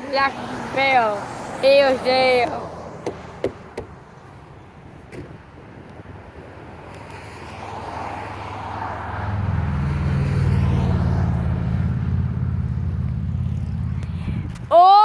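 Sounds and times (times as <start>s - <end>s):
truck passing by: 0.0s - 4.2s, 7.2s - 14.7s.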